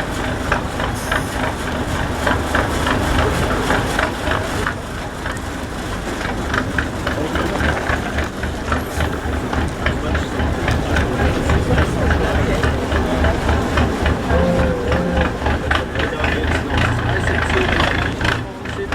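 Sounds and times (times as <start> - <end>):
diesel truck engine idling: 0.0 - 18.9.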